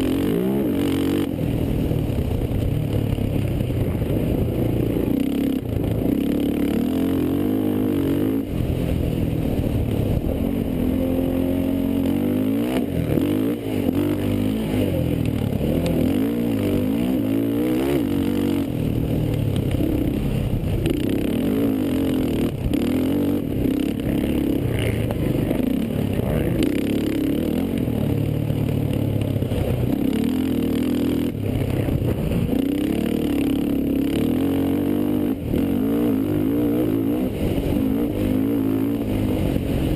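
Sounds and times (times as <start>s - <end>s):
quad engines revving: 0.0s - 2.4s, 9.6s - 39.9s.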